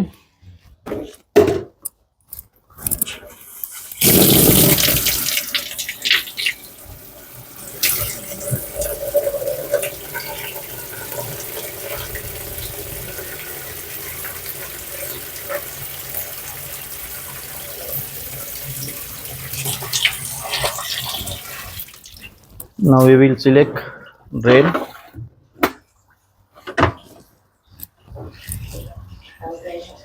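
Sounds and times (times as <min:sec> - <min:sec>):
water filling washing machine tub: 0:03.8 - 0:22.6.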